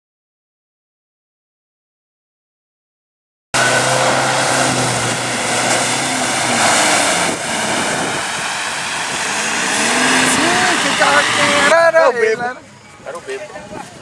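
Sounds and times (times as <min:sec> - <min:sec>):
loud steady noise: 0:03.6 - 0:12.1
off-road vehicle engines running: 0:03.6 - 0:14.0.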